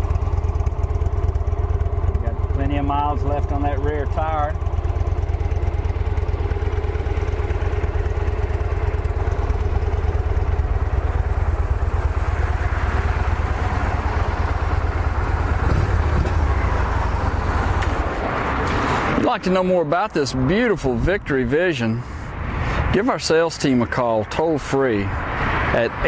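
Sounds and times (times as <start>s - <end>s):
motorcycle engine idling: 0.0s - 19.8s.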